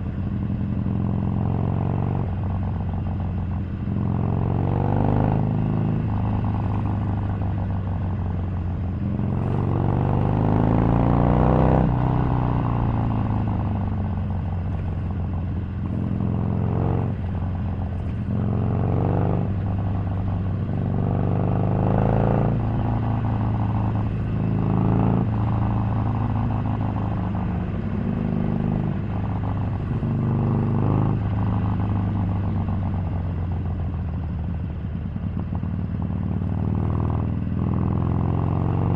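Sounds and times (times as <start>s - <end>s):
motorcycle engine revving: 8.9s - 38.9s.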